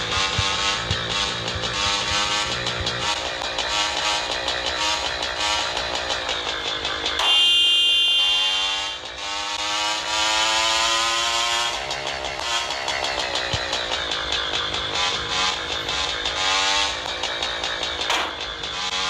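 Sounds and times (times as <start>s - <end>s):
background music: 0.0s - 19.0s
engine accelerating: 0.0s - 19.0s
road traffic: 0.0s - 19.0s
loud horn-like blare: 3.7s - 5.8s, 7.2s - 9.1s.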